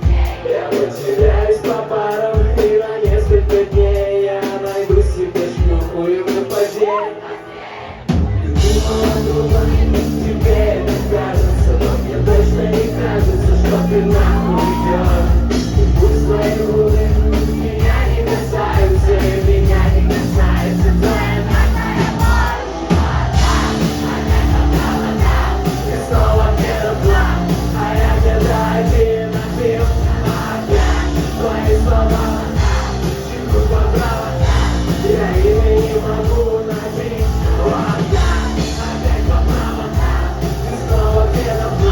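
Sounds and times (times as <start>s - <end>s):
drum beat: 0.0s - 6.8s, 8.1s - 41.9s
rock band playing loudly: 0.0s - 7.0s, 8.1s - 41.9s
person singing and yelling: 8.6s - 40.0s.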